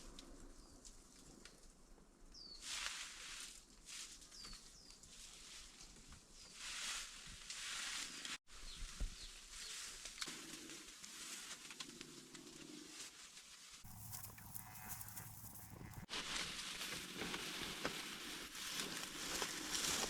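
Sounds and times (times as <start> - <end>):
rustling: 9.5 - 20.0.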